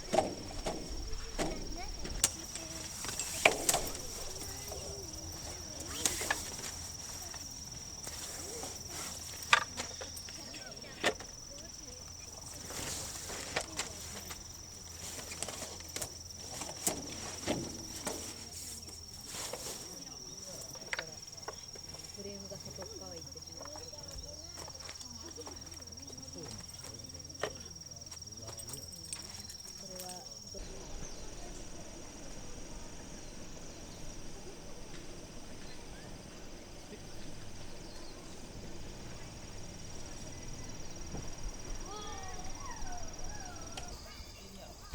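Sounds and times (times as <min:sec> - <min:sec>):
camping gear clicks and knocks: 0:00.0 - 0:31.2
cricket trilling: 0:00.0 - 0:44.9
insects chirring: 0:00.0 - 0:44.9
low background noise: 0:00.0 - 0:44.9.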